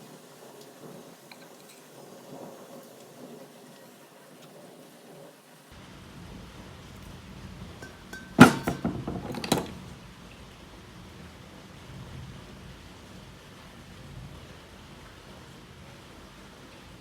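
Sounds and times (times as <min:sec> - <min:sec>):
metal clank with ring: 0:07.8 - 0:09.7
light metal clinks: 0:07.8 - 0:09.8.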